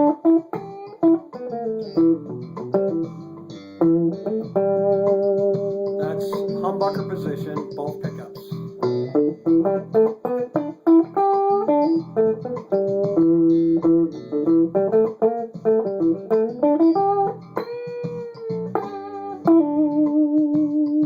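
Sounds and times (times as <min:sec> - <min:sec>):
electric guitar lead: 0:00.0 - 0:21.0
backing track: 0:00.6 - 0:11.0.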